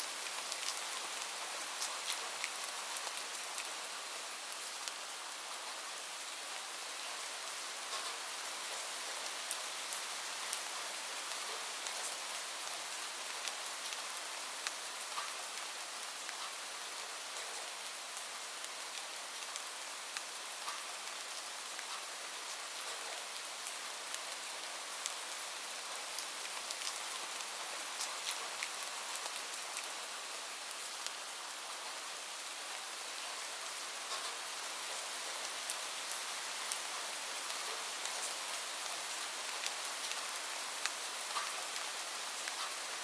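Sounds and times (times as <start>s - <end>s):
steady rain: 0.0s - 43.0s.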